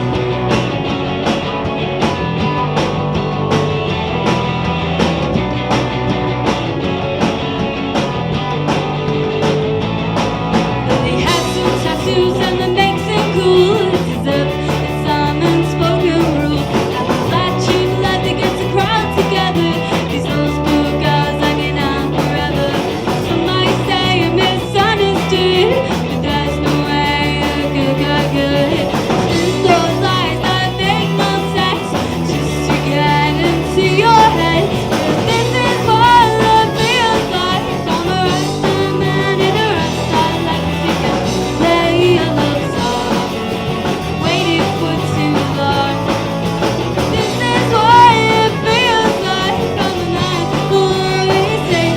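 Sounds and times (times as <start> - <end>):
rock band playing live: 0.0 - 51.9
woman singing: 10.9 - 46.3, 47.0 - 51.9.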